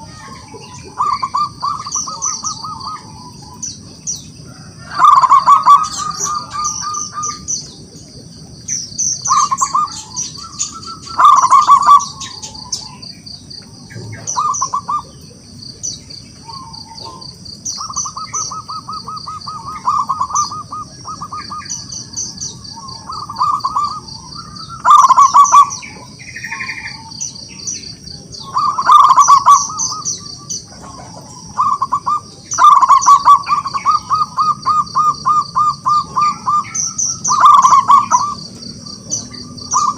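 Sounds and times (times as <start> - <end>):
dove cooing: 0.0 - 39.9
high-pitched whine: 0.0 - 39.9.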